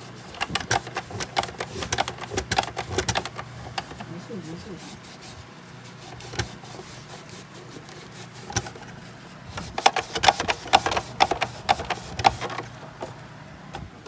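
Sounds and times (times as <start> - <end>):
thermal printer clicks and knocks: 0.0 - 4.1, 6.1 - 6.7, 8.4 - 14.0
faint steady hum: 0.0 - 14.0.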